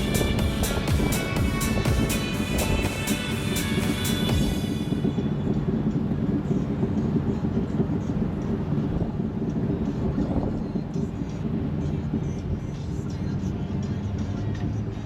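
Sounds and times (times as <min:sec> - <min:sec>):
music: 0:00.0 - 0:05.3, 0:11.8 - 0:15.0
car engine rumble: 0:00.0 - 0:15.0.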